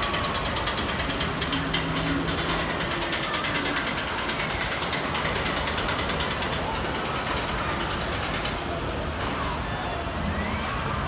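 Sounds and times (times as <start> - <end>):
rapid clattering ticks: 0.0 - 8.6
fairground ride mechanical din: 0.0 - 11.0.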